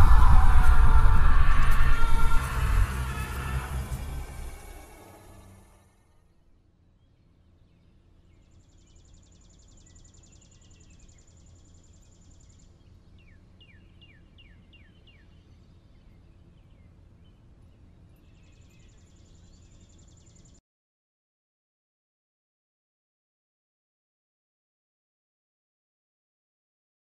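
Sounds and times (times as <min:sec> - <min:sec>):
low steady rumble: 0:00.0 - 0:05.8.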